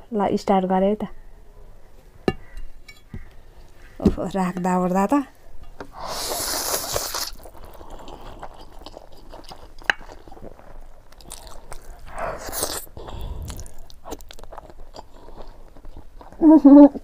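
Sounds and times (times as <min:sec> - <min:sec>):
wet chewing: 0:06.1 - 0:17.0
breathy sound: 0:12.0 - 0:13.9.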